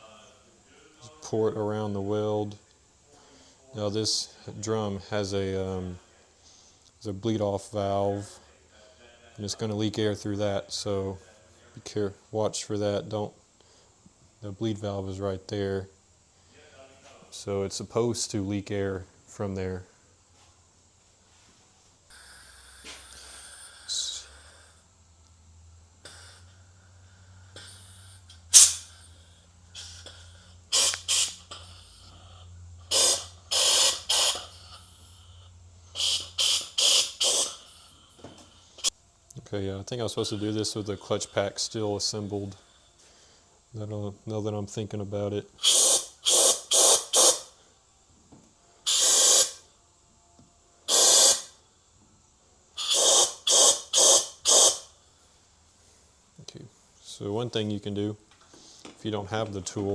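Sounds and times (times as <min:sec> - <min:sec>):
faint low hum: 0:00.0 - 0:48.9, 0:49.5 - 0:50.9
compressed air hissing blasts: 0:22.1 - 0:25.0, 0:25.8 - 0:39.0, 0:39.9 - 0:43.5, 0:45.5 - 0:47.6, 0:48.8 - 0:49.7, 0:50.8 - 0:51.6, 0:52.7 - 0:55.0.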